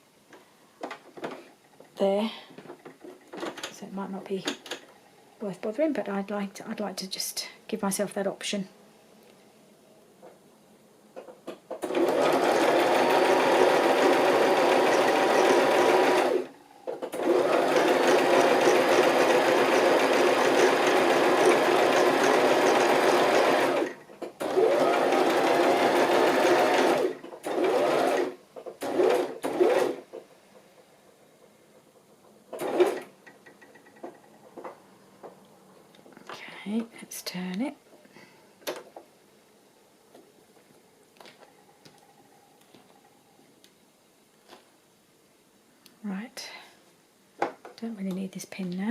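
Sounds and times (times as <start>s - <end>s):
sewing machine stitching: 11.8s - 30.2s, 32.5s - 34.2s.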